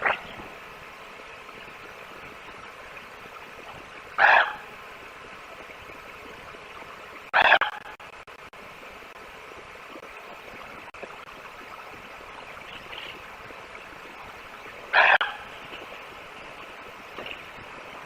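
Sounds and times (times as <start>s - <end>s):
outdoor hiss: 0.0s - 7.3s, 8.0s - 18.0s
loud animal call: 4.2s - 4.6s, 14.9s - 15.5s.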